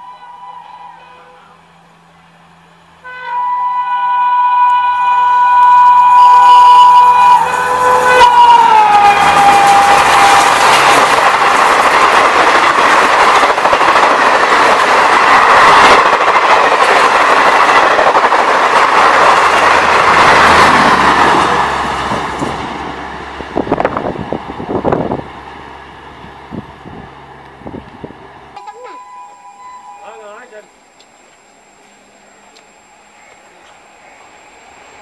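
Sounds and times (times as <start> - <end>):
locomotive horn: 0.0 - 1.8, 3.0 - 11.1
train rushing past with wheel clatter: 0.0 - 35.0.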